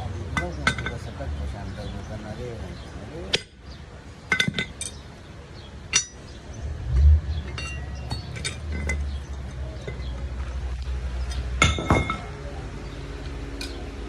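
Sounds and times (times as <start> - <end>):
steel parts clinking together: 0.4 - 1.1, 4.3 - 5.1, 5.9 - 6.3, 7.4 - 10.2, 11.2 - 12.3, 13.6 - 13.8
low rumble: 6.5 - 11.4.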